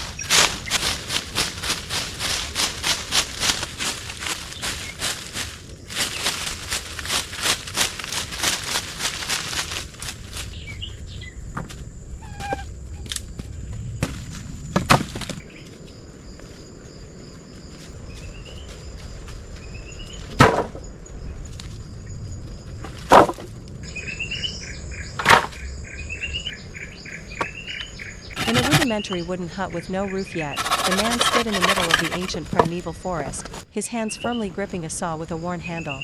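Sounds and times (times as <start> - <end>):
birds chirping: 0.0 - 1.1, 23.9 - 33.2
insects droning: 0.0 - 36.0
quick scraping strokes: 28.3 - 29.0, 30.6 - 32.4
sharp wooden knocks: 28.4 - 28.9, 30.6 - 32.3.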